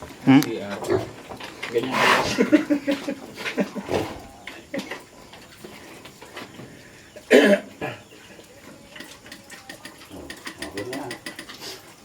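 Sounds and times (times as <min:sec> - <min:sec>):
faint background noise: 0:00.0 - 0:12.0
person coughing: 0:07.3 - 0:08.0.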